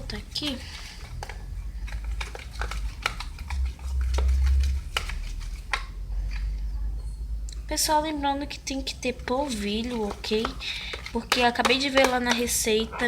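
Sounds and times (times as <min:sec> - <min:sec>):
spoon and plastic pot clicks: 0:10.3 - 0:12.6.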